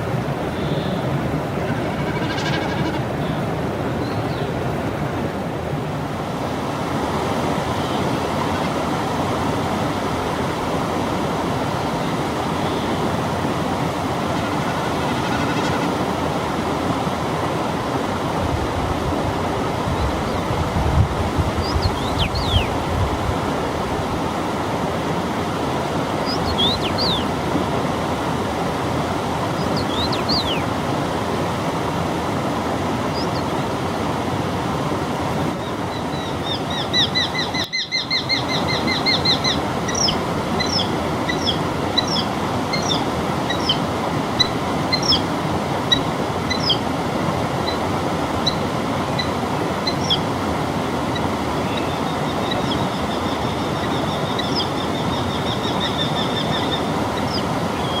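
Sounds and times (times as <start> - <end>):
steady rushing noise: 0.0 - 35.9
songbirds singing: 1.9 - 4.6, 19.8 - 23.1, 26.2 - 27.3, 29.6 - 30.7, 35.6 - 45.3, 45.9 - 46.9, 49.2 - 50.3, 51.1 - 58.0.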